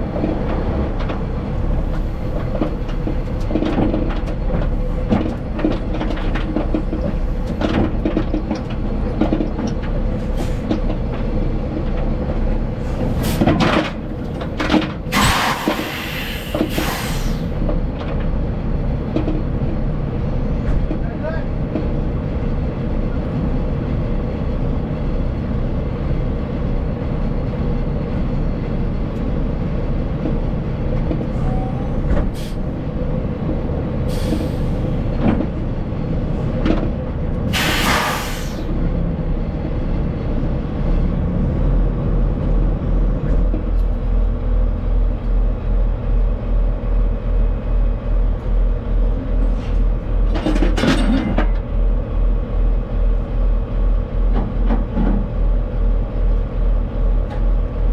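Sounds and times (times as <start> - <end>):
heavy truck running: 0.0 - 57.9
air hissing: 15.1 - 17.5, 37.5 - 38.7.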